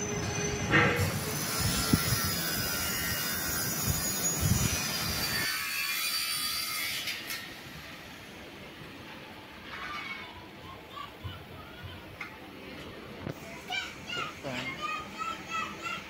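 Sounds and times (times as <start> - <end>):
train rushing hiss: 0.0 - 5.5.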